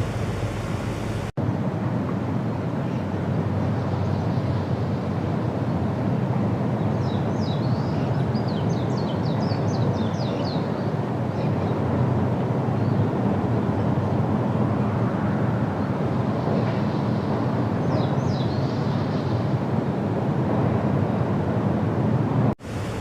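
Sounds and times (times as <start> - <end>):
steady low rumble: 0.0 - 1.7, 22.6 - 23.0.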